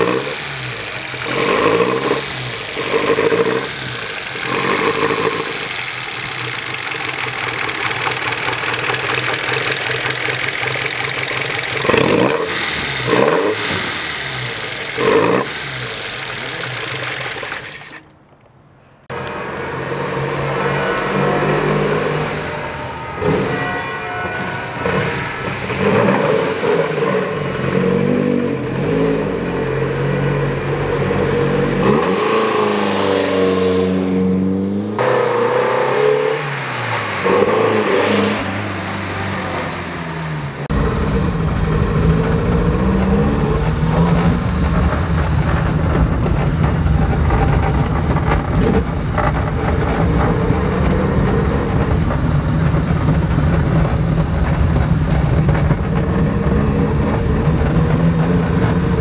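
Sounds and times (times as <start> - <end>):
car engine revving and passing: 0.0 - 17.7, 19.0 - 59.0
engine drone inside car cabin: 40.4 - 59.0.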